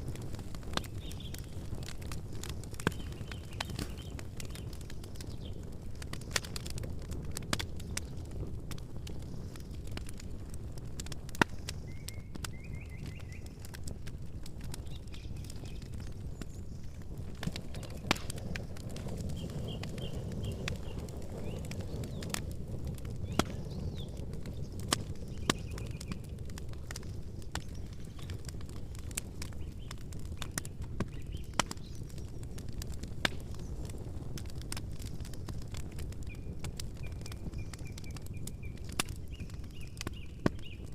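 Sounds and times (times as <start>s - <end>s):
campfire crackling and popping: 0.0s - 40.9s
low rumble of flames: 0.0s - 40.9s
bird chirping: 2.9s - 5.6s, 11.9s - 13.6s, 19.3s - 22.3s, 23.2s - 26.2s.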